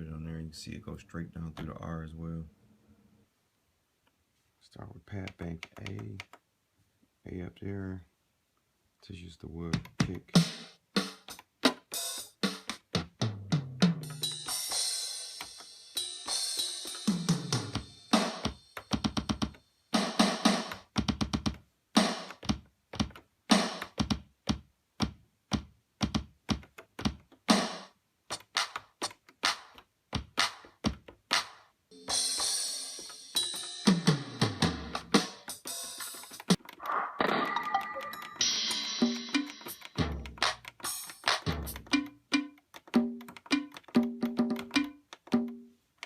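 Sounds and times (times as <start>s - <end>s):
drum machine hits: 9.8s - 36.6s, 37.2s - 45.6s.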